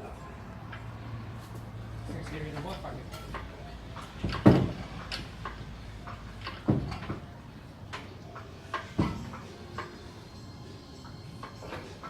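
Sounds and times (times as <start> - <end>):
metal knocks and clanks: 2.3 - 7.3, 7.9 - 10.1.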